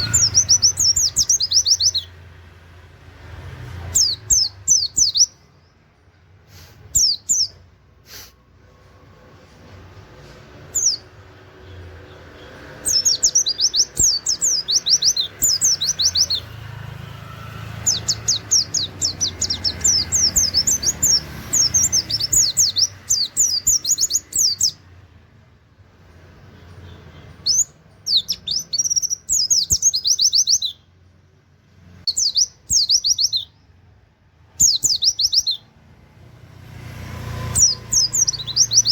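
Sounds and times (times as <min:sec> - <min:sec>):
bird singing rapid high notes: 0:00.0 - 0:02.4, 0:03.8 - 0:05.8, 0:06.8 - 0:07.7, 0:10.6 - 0:25.0, 0:26.5 - 0:31.0, 0:31.9 - 0:33.9, 0:34.5 - 0:35.8, 0:37.3 - 0:38.9.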